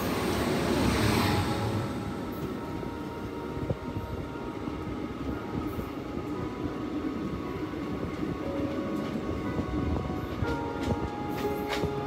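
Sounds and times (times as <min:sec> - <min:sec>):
moving train rumble: 0:00.0 - 0:12.0.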